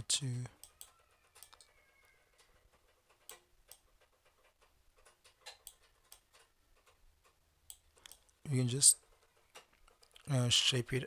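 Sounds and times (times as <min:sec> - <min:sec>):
mouse and keyboard clicks: 0:03.1 - 0:03.9.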